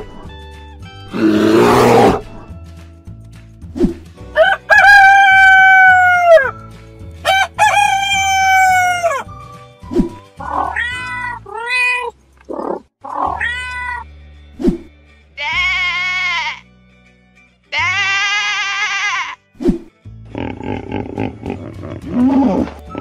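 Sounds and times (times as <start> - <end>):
soft background music: 0.0 - 23.0
rooster crowing: 4.4 - 6.6, 7.2 - 9.2
cat meowing: 10.4 - 12.1, 13.0 - 14.1.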